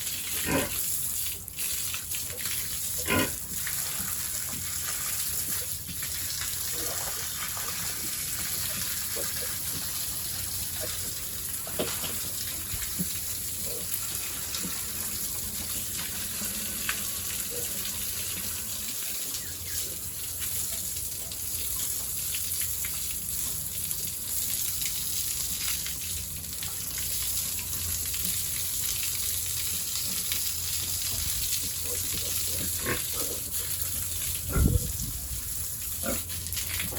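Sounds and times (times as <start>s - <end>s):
water gushing: 0.0s - 36.9s.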